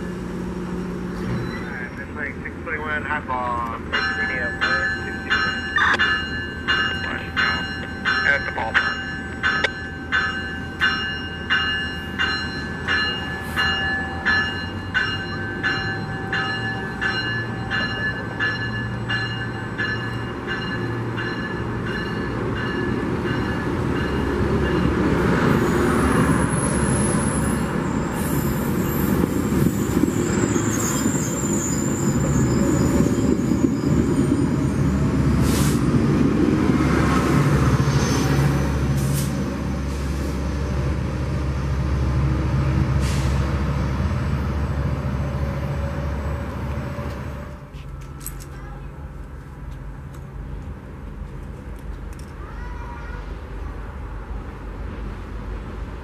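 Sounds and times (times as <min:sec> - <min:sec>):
train wheels and engine rumbling: 0:00.0 - 0:56.0
bell ringing: 0:03.9 - 0:24.9.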